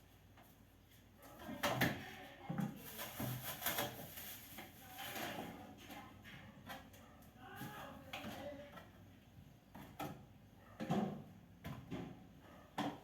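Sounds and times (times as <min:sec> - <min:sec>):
soft rustling: 0:02.6 - 0:06.1.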